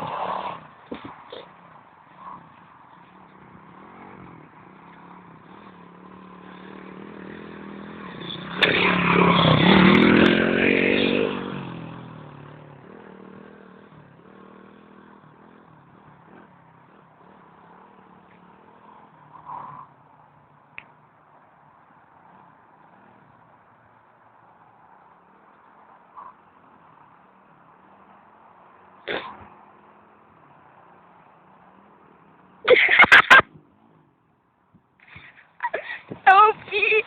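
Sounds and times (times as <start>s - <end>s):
motorbike engine passing by: 0.0s - 37.0s.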